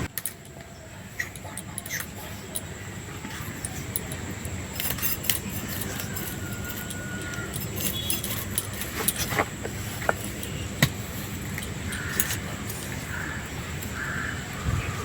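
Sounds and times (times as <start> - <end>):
bird calls: 11.8 - 15.0.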